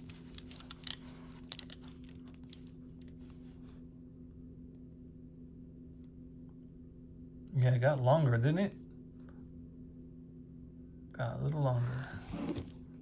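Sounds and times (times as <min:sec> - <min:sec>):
toy cars clicking and rustling: 0:00.0 - 0:03.2
steady low hum: 0:00.0 - 0:13.0.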